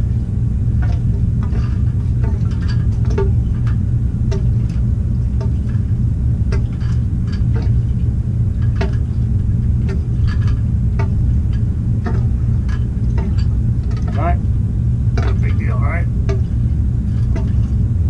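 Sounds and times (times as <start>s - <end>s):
low machine hum: 0.0s - 18.0s
metal tools clinking on pipes: 9.8s - 14.4s, 15.2s - 15.7s.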